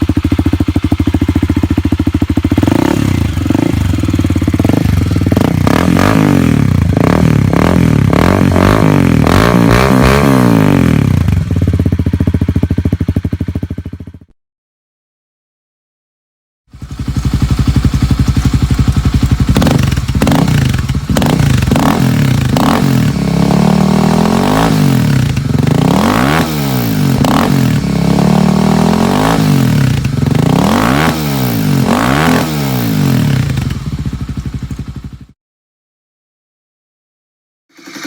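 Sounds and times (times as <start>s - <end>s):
engine revving: 2.4s - 11.5s, 16.7s - 34.1s.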